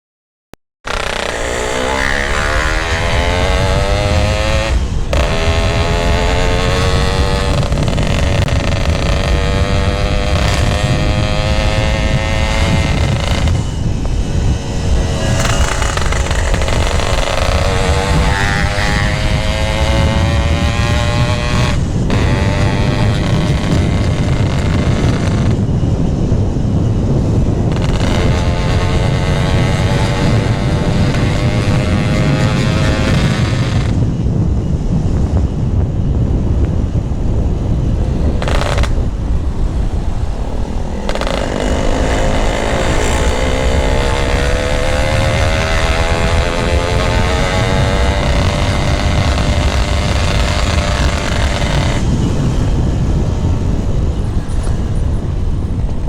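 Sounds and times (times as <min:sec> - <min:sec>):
two-stroke motorcycle engine: 0:00.9 - 0:56.0.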